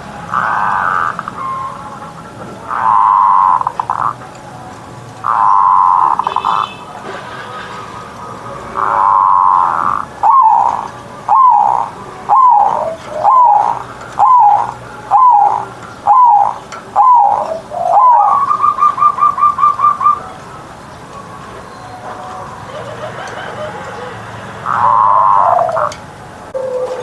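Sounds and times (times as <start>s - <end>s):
dove cooing: 0.3s - 1.8s, 2.6s - 4.2s, 5.2s - 6.8s, 8.7s - 20.4s, 22.3s - 27.0s.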